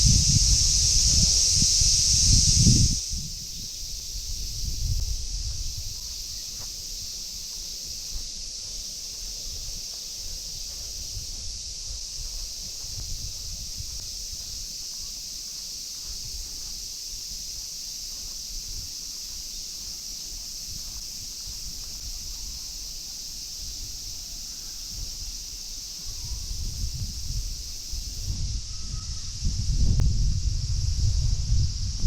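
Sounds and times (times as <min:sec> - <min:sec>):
cicadas droning: 0:00.0 - 0:32.0.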